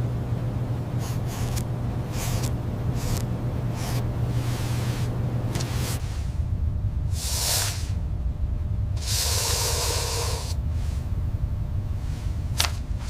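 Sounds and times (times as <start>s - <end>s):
steady low rumble: 0.0s - 13.0s
hissing: 0.9s - 8.2s, 8.9s - 11.2s.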